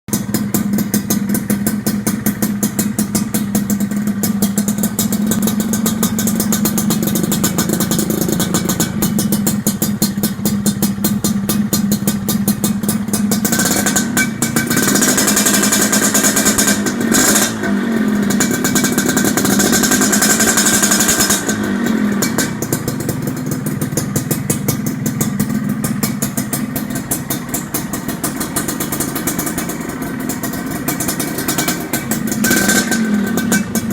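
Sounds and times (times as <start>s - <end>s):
motorcycle engine idling and revving: 0.1s - 33.9s.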